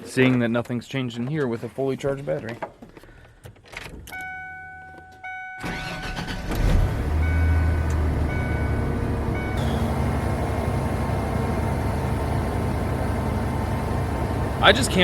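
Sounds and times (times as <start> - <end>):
dash warning chime beeping: 4.1 - 6.2, 7.0 - 10.2
engine cranking on starter: 5.6 - 11.2
truck engine idling: 5.6 - 15.0.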